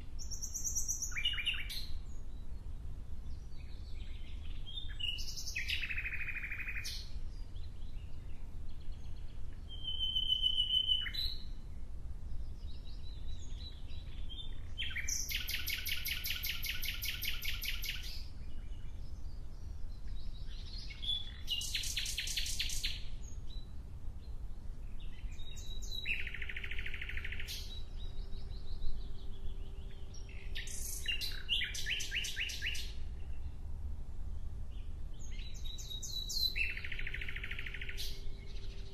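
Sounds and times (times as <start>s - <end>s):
songbird singing trilled phrases: 0.0s - 33.6s, 34.7s - 38.9s
steady low rumble: 32.9s - 35.9s.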